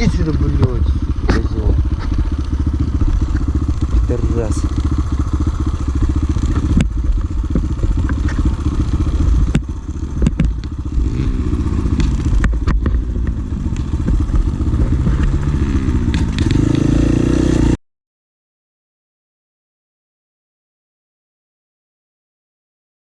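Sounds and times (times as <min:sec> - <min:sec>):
motorcycle engine revving: 0:00.0 - 0:17.8
sharp knocks: 0:06.4 - 0:08.5, 0:09.3 - 0:11.2, 0:11.9 - 0:15.4.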